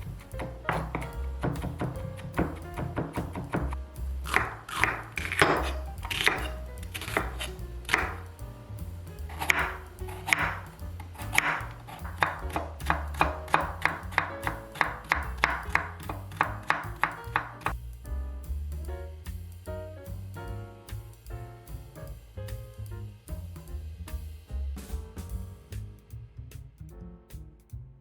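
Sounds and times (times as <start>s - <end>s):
knife chopping vegetables: 0.0s - 8.2s, 9.3s - 17.7s
background music: 0.0s - 28.0s.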